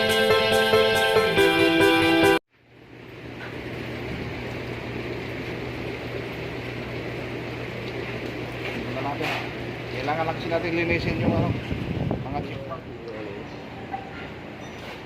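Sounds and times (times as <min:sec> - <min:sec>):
music: 0:00.0 - 0:02.4
mechanical drone with low hum: 0:02.6 - 0:14.7.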